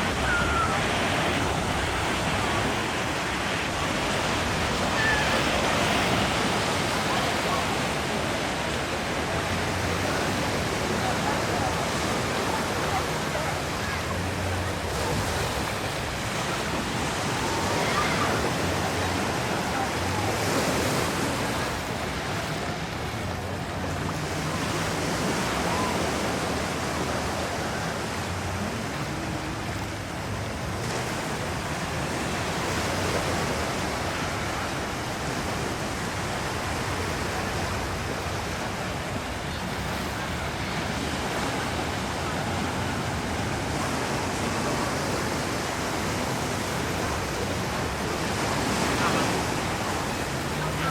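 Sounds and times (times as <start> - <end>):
surf washing onto sandy beach: 0.0 - 50.9.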